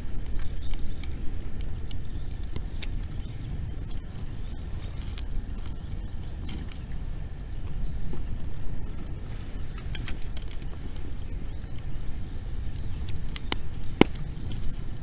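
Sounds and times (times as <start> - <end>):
bonfire crackling: 0.0 - 15.0
sharp fire pops: 0.0 - 15.0.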